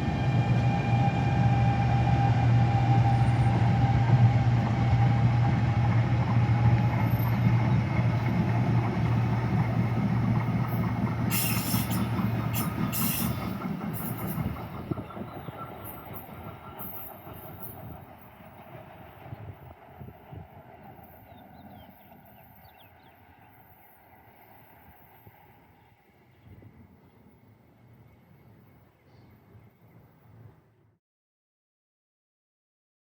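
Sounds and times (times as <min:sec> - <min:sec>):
train wheels squealing: 0:00.0 - 0:08.5, 0:10.4 - 0:18.1
train passing hum: 0:00.0 - 0:30.8.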